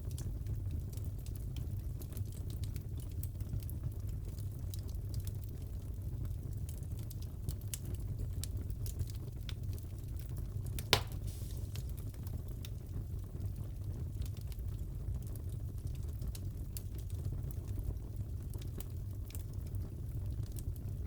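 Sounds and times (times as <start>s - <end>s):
wood fire crackling: 0.0s - 21.0s
loud sharp pop: 10.9s - 11.9s.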